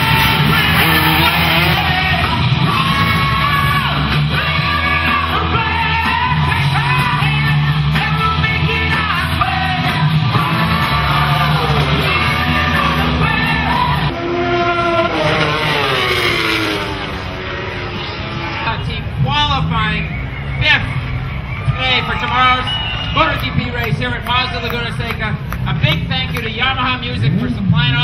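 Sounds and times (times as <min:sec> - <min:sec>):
person singing loudly: 0:00.0 - 0:14.1
rock band playing: 0:00.0 - 0:14.1.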